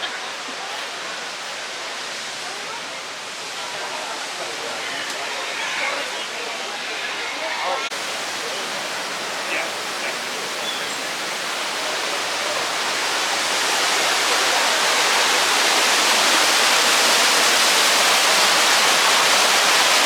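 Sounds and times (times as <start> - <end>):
steady rushing noise: 1.2 - 16.8.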